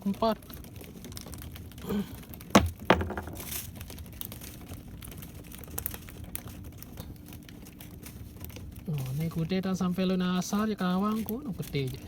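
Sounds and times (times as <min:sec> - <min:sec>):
sharp knocks: 0:02.6 - 0:03.5.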